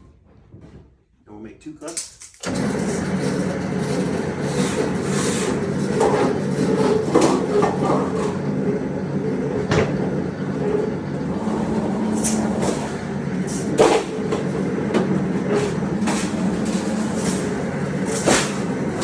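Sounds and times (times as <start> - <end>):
machine motor humming: 2.4 - 19.0
metallic clanks: 11.3 - 19.0.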